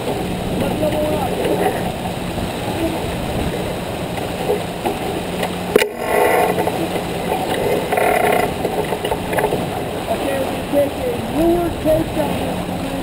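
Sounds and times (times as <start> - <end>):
water noise: 0.0 - 13.0
wind: 0.0 - 13.0.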